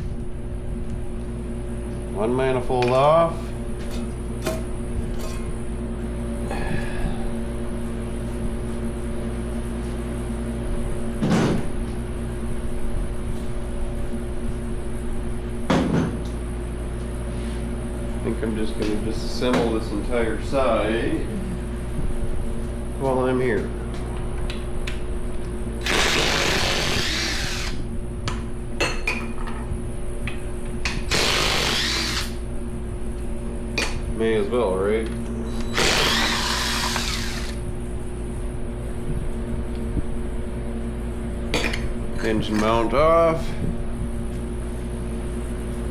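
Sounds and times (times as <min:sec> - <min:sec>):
steady mechanical hum: 0:00.0 - 0:45.9
handheld power tool spinning: 0:25.8 - 0:27.8, 0:31.1 - 0:32.4, 0:35.5 - 0:37.6.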